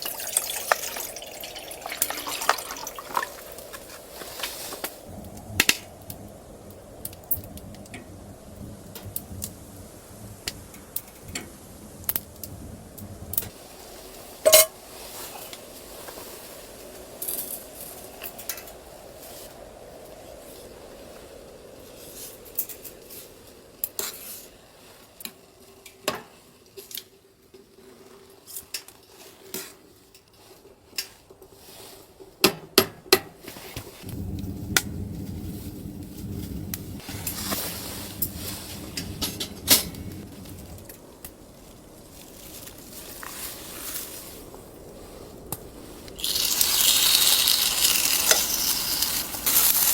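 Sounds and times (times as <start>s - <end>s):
metal cookware clinking: 0.0s - 3.6s, 14.4s - 14.8s.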